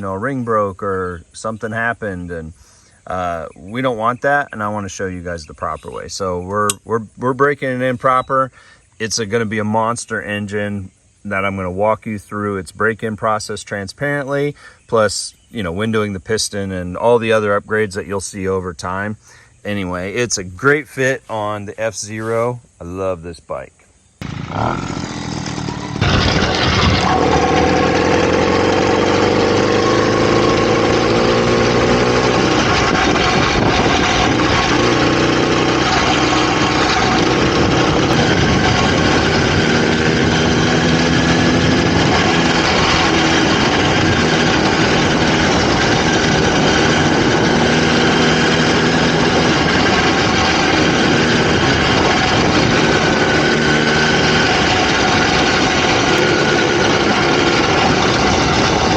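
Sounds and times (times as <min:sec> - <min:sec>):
two-stroke engine running: 0:24.2 - 0:58.9.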